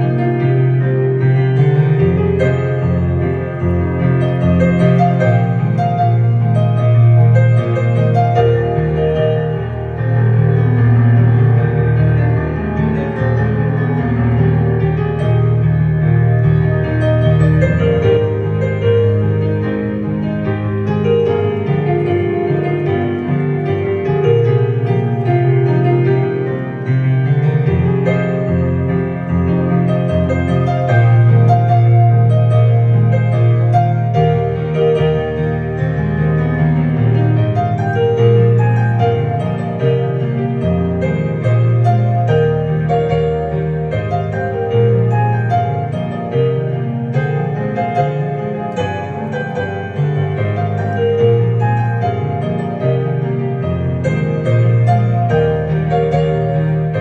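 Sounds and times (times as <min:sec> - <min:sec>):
digital piano playing pop song: 0:00.0 - 0:57.0.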